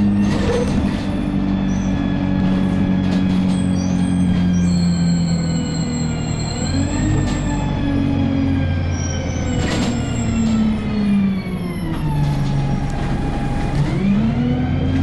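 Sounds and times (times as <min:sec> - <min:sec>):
vehicle engine running: 0:10.5 - 0:15.0.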